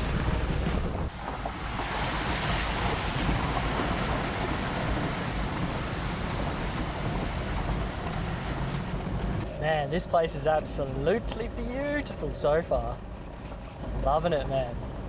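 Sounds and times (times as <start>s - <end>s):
low engine rumble: 0.0s - 15.0s
vehicle on rough dirt track: 0.0s - 15.0s.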